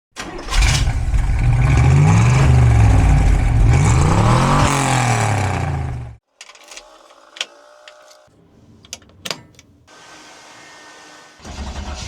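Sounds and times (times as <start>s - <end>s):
engine exhaust revving: 0.9s - 6.2s.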